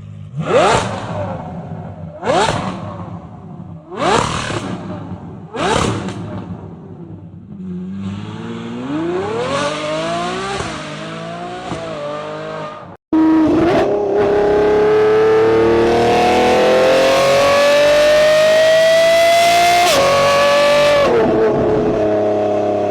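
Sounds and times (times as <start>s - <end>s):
car engine revving: 0.0s - 22.9s
car engine accelerating hard: 7.5s - 22.9s.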